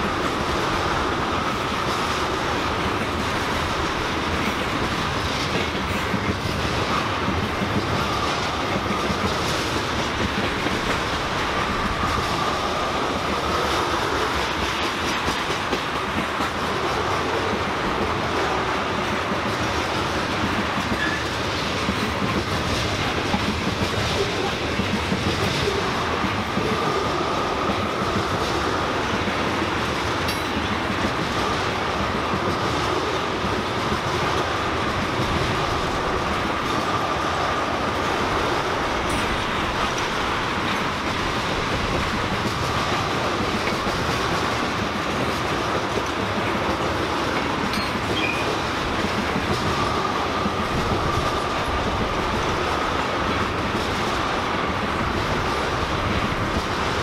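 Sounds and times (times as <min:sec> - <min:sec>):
train wheels rumbling on rails: 0:00.0 - 0:57.0
faint high wheel squeal: 0:47.8 - 0:48.5.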